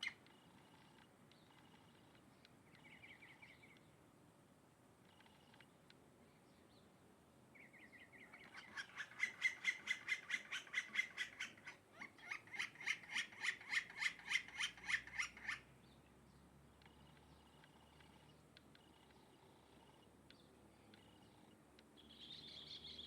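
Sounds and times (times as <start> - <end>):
bird calling repeated notes: 7.6 - 15.7.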